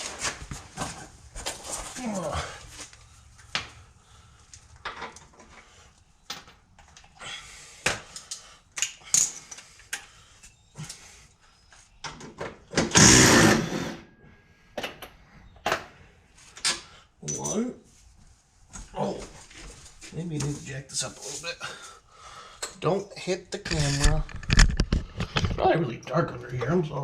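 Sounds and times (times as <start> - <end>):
loud harsh burst: 12.9 - 14.0.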